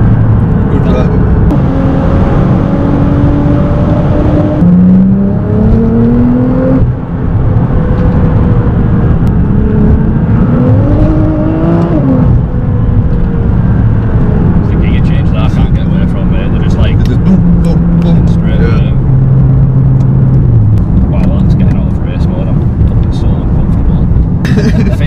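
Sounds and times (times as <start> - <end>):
car engine accelerating hard: 0.0 - 25.0.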